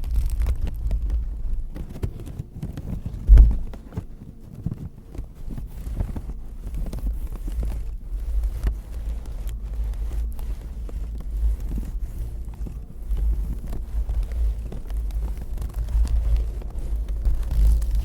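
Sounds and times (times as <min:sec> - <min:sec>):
object scratched at microphone: 0:01.8 - 0:18.0
low handling rumble: 0:02.9 - 0:04.4
loud thump: 0:03.3 - 0:03.7.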